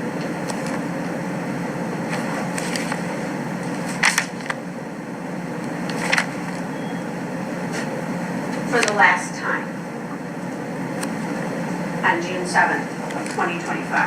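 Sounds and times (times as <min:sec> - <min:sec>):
ventilation hum and hiss: 0:00.0 - 0:14.0.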